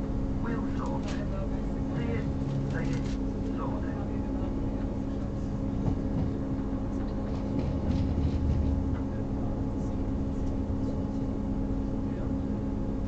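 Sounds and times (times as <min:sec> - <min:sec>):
wheels rumbling on track: 0:00.0 - 0:13.0.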